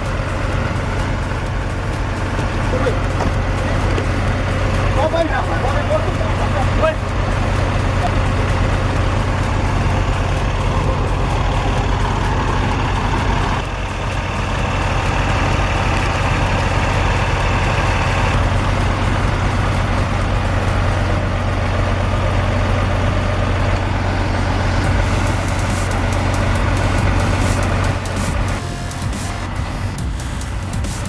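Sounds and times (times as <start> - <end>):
truck engine droning under load: 0.0 - 31.0.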